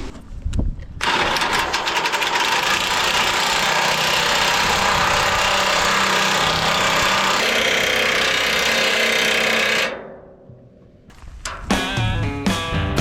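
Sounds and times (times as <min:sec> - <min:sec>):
sawmill gasoline engine running: 0:01.0 - 0:09.9.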